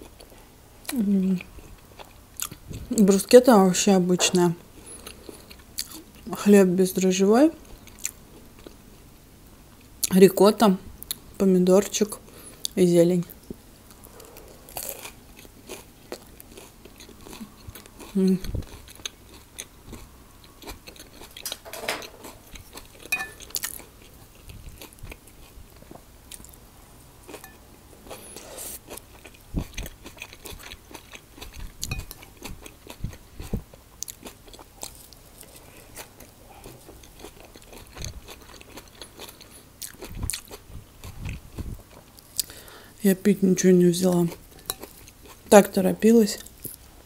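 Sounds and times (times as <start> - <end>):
person chewing food: 0.0 - 2.9, 4.8 - 6.3, 7.6 - 8.8, 13.4 - 42.8, 44.2 - 45.5.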